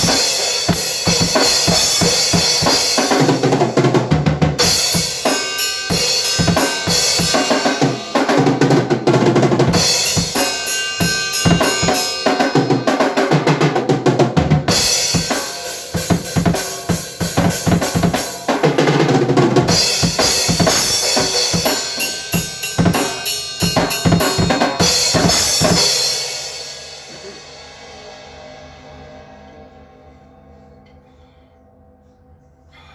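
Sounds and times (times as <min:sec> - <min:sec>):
drum kit playing: 0:00.0 - 0:29.9
cymbals ringing out: 0:04.6 - 0:08.2, 0:09.7 - 0:12.9.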